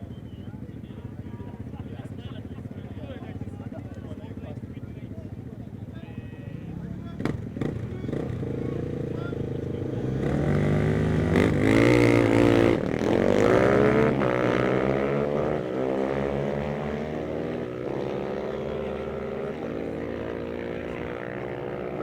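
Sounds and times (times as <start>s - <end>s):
motorcycles accelerating hard: 0.6s - 22.0s.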